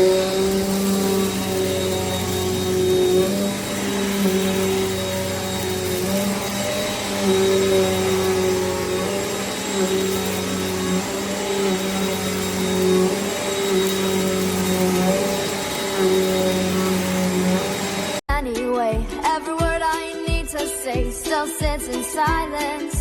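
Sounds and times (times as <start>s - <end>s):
vacuum cleaner running: 0.0s - 18.3s.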